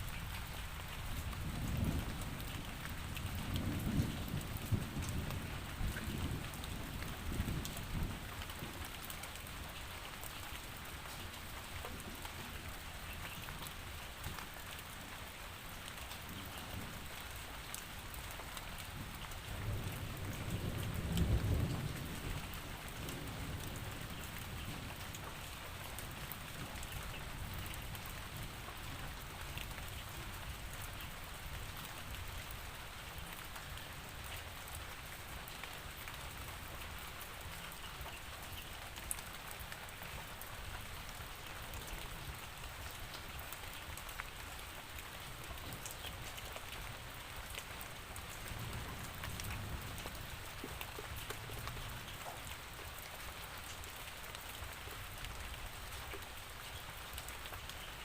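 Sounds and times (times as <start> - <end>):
raindrop ticks: 45.0 - 54.6.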